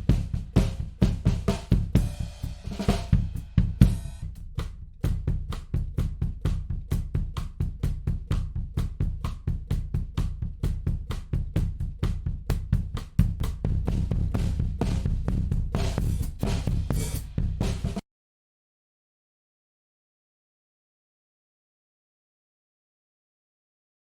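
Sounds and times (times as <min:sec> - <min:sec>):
drum kit playing a beat: 0:00.0 - 0:18.0.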